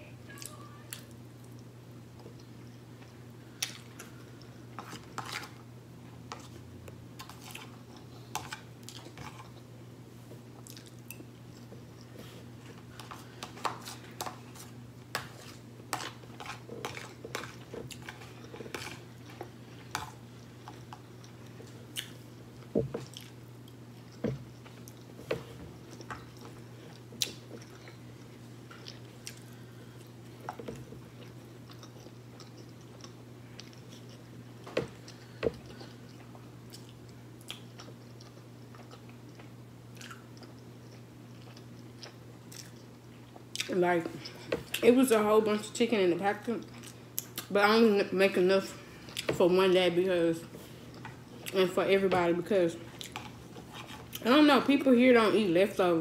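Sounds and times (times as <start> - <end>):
person chewing: 10.6 - 25.2, 25.8 - 44.8, 52.9 - 54.2.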